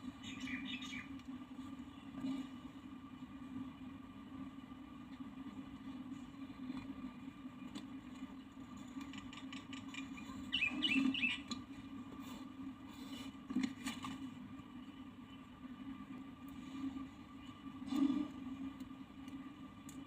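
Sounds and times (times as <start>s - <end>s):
steady low hum: 0.0s - 20.0s
small bird chirping: 0.2s - 1.1s, 10.1s - 11.5s.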